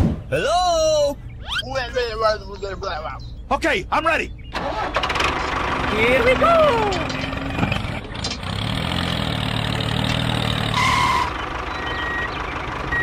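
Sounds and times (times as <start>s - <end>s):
tractor engine running: 4.4s - 13.0s
reversing beeper: 10.7s - 13.0s.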